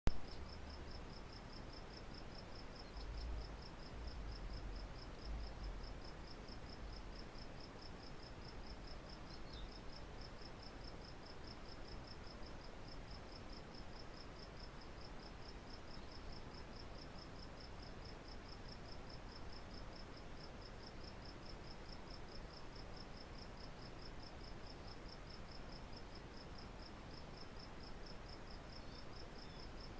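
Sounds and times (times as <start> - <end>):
cricket chirping: 0.1 - 29.9.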